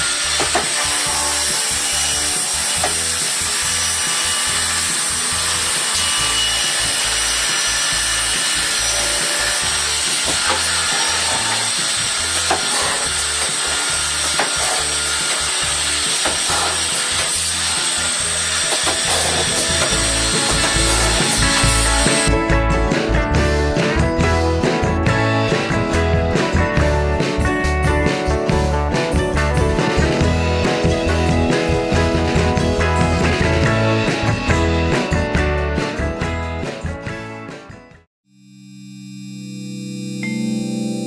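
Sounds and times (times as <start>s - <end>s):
machine drilling into wood: 0.0s - 22.4s
high-pitched machine whine: 38.4s - 41.0s.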